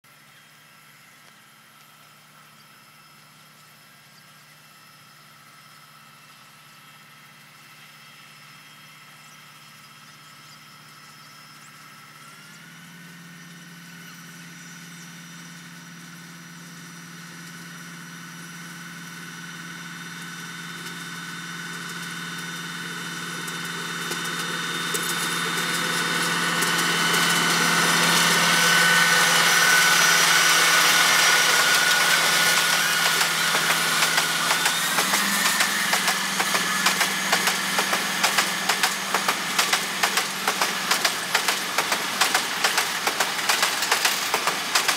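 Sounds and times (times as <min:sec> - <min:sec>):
locomotive engine drone: 0:00.1 - 0:44.9
wheels clacking over rail joints: 0:20.7 - 0:44.9.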